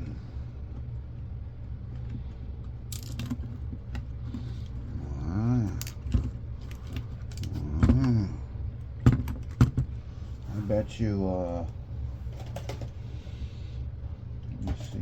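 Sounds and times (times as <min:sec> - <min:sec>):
steady low hum: 0:00.0 - 0:15.0
small parts clicking and clinking: 0:02.9 - 0:04.1, 0:05.5 - 0:08.1.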